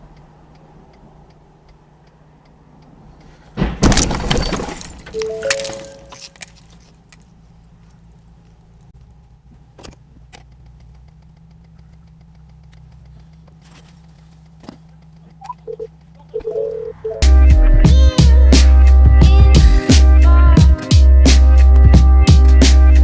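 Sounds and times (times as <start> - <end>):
sharp clicks: 0.0 - 3.3, 9.8 - 16.6
vehicle engine hum: 0.0 - 23.0
short beeping tones: 5.1 - 6.2, 15.4 - 17.2.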